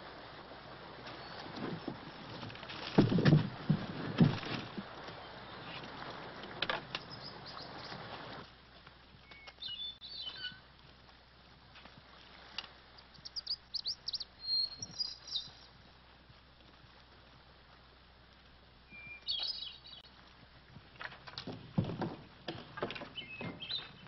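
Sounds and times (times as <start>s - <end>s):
small birds chirping: 7.0s - 8.0s, 9.2s - 10.6s, 13.0s - 15.8s, 18.9s - 20.1s, 23.1s - 24.0s.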